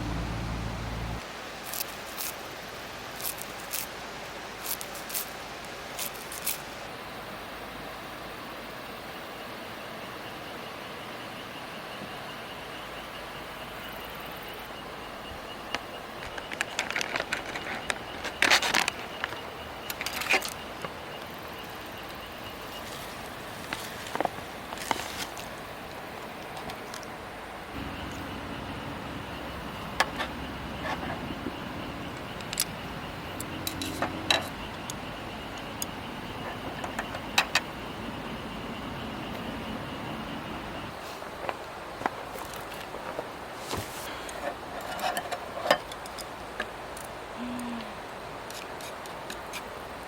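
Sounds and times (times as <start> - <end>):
steady outdoor hiss: 0.0 - 50.0
rustling scrape: 42.3 - 45.7.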